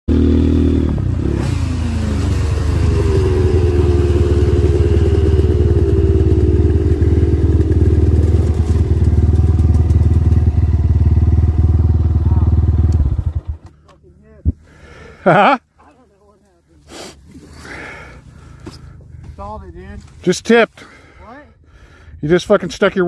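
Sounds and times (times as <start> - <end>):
dirt bike engine running: 0.1 - 13.7
engine knock: 7.2 - 10.8.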